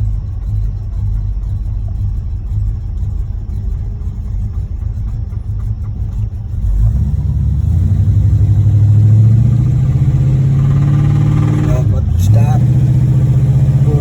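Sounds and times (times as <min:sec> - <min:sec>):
car engine accelerating: 0:00.0 - 0:14.0
engine knocking: 0:00.0 - 0:14.0.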